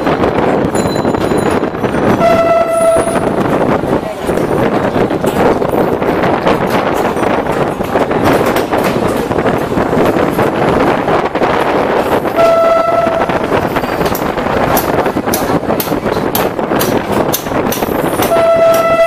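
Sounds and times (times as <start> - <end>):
train running noise: 0.0 - 19.0
train horn blast: 2.1 - 3.5, 12.3 - 13.5, 18.2 - 19.0.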